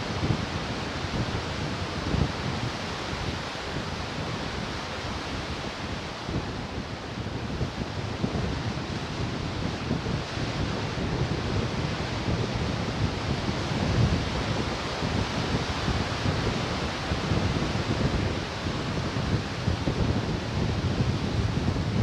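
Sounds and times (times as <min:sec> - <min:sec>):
ocean surf washing in: 0:00.0 - 0:21.9
wind buffeting microphone: 0:00.0 - 0:22.0.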